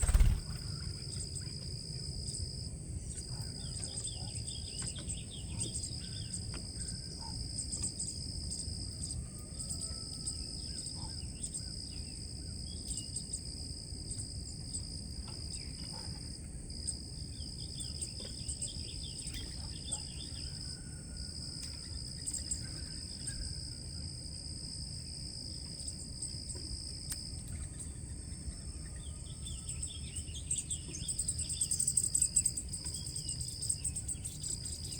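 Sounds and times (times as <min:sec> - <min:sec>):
high-pitched insect chorus: 0:00.0 - 0:34.9.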